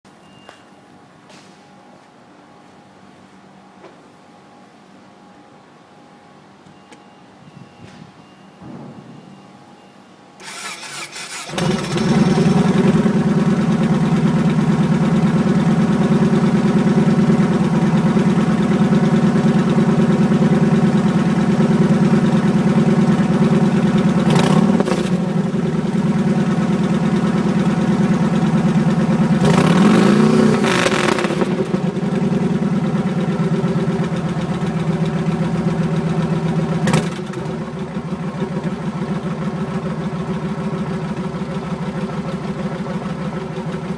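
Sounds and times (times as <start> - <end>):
motorcycle engine revving: 10.4 - 37.9
motorcycle engine idling: 10.4 - 43.9
motorcycle engine starting: 10.4 - 43.9.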